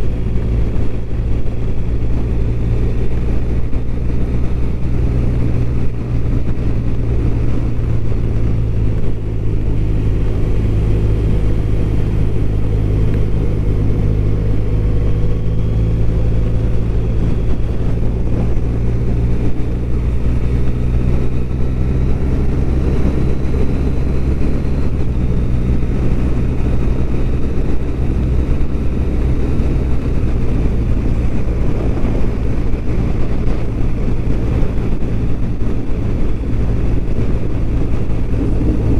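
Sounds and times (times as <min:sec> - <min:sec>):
motorcycle engine cruising: 0:00.0 - 0:38.9
wind and road noise: 0:00.0 - 0:38.9.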